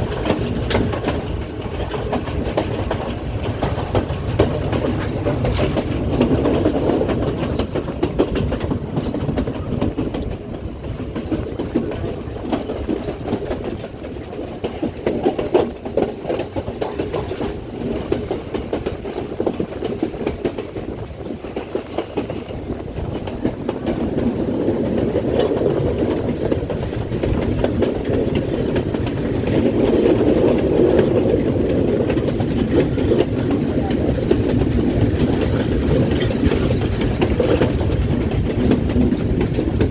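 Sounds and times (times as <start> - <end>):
train rumbling on rails: 0.0 - 39.9
wheels clacking over rail joints: 0.0 - 39.9.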